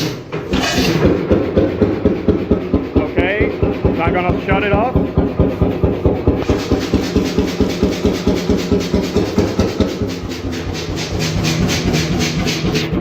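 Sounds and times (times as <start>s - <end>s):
oil engine putting slowly: 0.3s - 13.0s.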